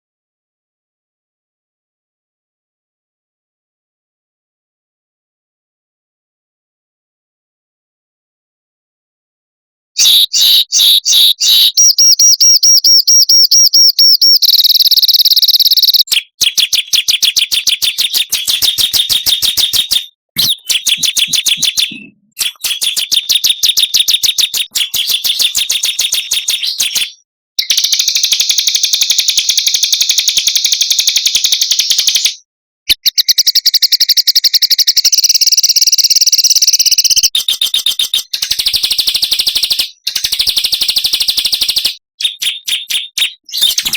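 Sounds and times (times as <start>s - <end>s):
songbirds trilling and chirping: 14.0s - 27.8s.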